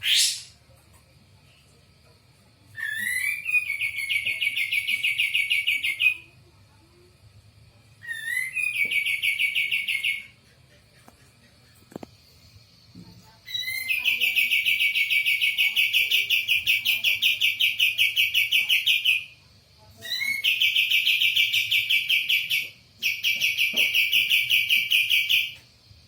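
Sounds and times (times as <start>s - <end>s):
songbird singing trills: 8.0s - 10.3s.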